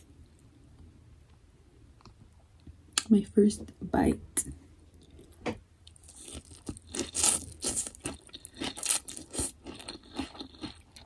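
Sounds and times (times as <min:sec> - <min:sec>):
person chewing crunchy food: 0:04.9 - 0:11.0.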